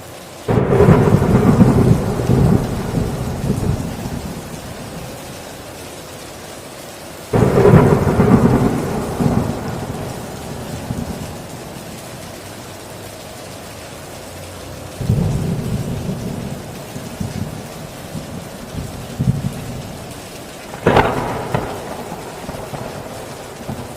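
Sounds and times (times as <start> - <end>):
heavy rain on a tin roof: 0.0 - 23.9
thunder clap and rumble: 0.5 - 5.3, 7.3 - 12.4, 15.0 - 23.9.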